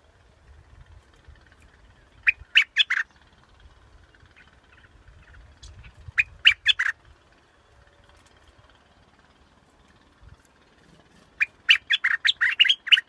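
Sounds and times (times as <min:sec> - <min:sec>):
bulbul calling: 0:01.5 - 0:07.3, 0:10.8 - 0:13.0.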